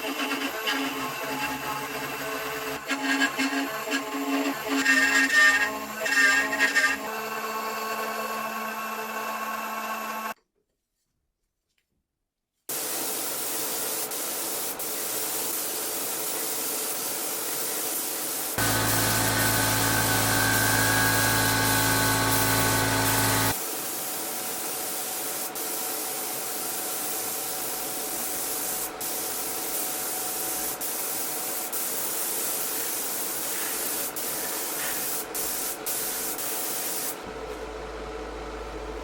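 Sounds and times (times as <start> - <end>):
spray paint hissing: 12.7 - 37.2
loud steady hum: 18.6 - 23.6.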